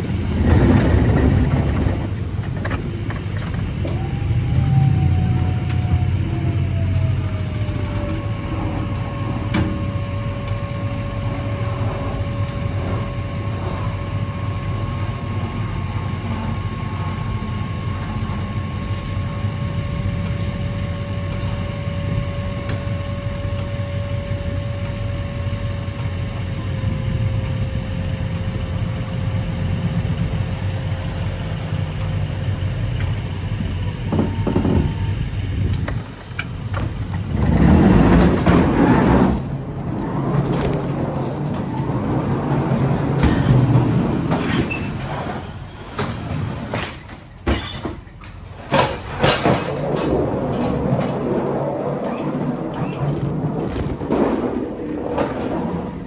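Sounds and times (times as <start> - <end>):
vehicle engine running: 0.0 - 44.4
steady whining tone: 0.0 - 47.4, 48.0 - 56.0.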